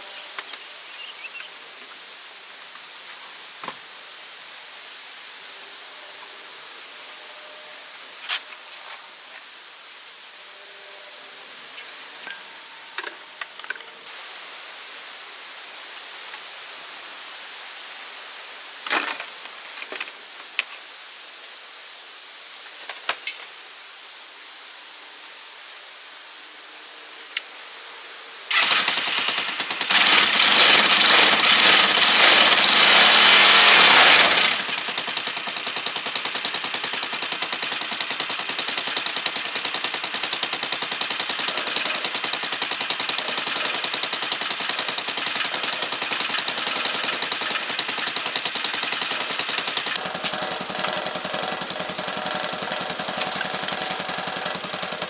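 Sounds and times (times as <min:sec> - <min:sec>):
motor tricycle engine revving: 0:28.5 - 0:55.0.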